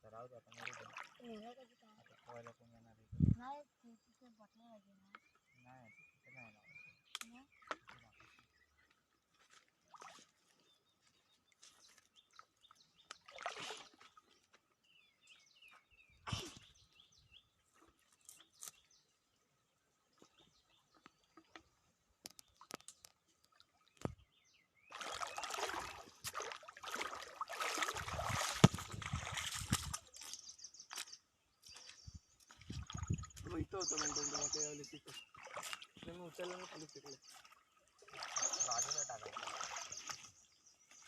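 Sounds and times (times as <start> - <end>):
water splashing: 0.1 - 3.0, 7.2 - 8.5, 9.4 - 10.7, 13.0 - 14.5, 24.9 - 31.1, 31.7 - 41.0
small birds chirping: 0.1 - 26.5, 27.8 - 41.0.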